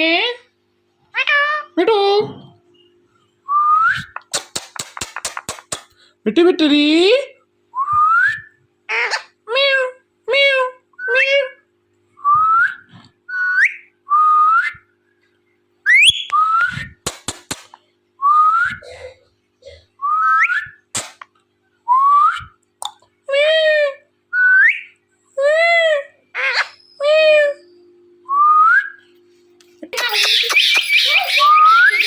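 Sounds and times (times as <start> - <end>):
sharp clicks: 4.2 - 5.9
parrot whistling: 15.9 - 16.6, 30.0 - 32.0
parrot rasping calls: 30.0 - 32.0.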